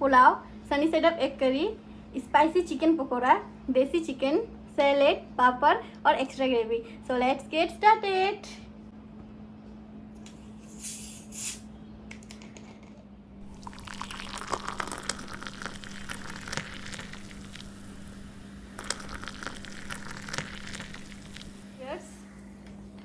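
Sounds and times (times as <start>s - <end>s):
faint electrical hum: 0.0s - 23.0s
wet squishing of food mixed by hand: 13.4s - 21.7s.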